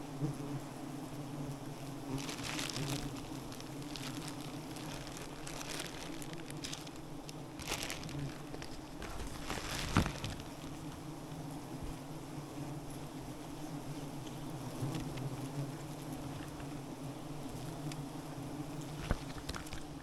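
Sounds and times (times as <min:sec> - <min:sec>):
bees droning: 0:00.1 - 0:17.5
rustling and crackling: 0:01.8 - 0:12.0, 0:18.8 - 0:20.0.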